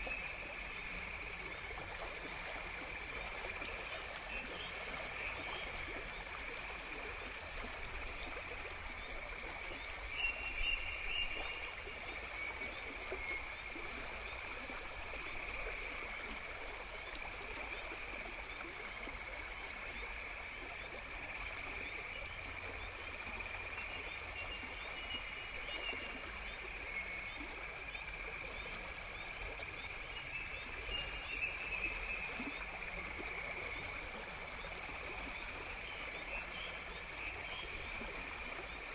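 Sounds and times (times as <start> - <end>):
insects chorus: 0.0 - 21.9, 26.8 - 38.9.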